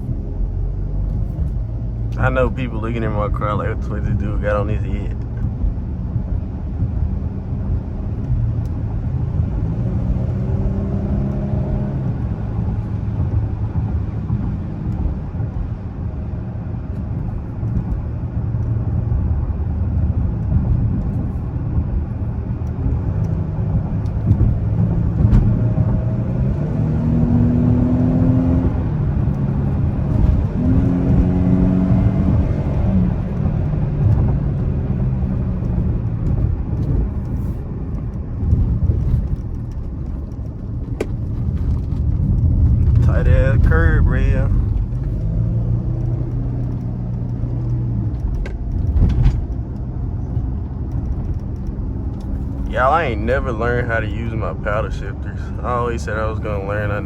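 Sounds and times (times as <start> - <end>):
low road noise rumble: 0.0 - 57.0
car engine pitch rising: 22.4 - 57.0.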